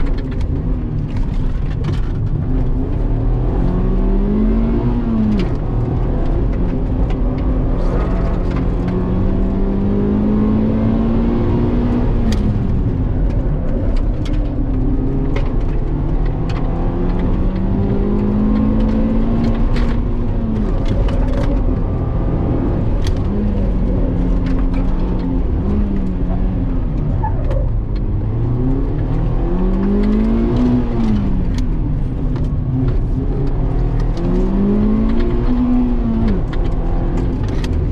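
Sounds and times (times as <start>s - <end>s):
road noise: 0.0s - 37.9s
car engine revving hard: 3.0s - 12.6s.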